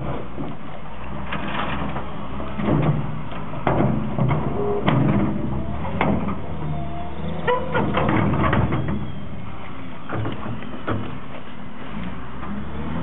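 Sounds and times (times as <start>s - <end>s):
diesel engine running under load: 0.0s - 13.0s
machine clanking and knocking: 1.3s - 6.4s, 7.5s - 9.1s.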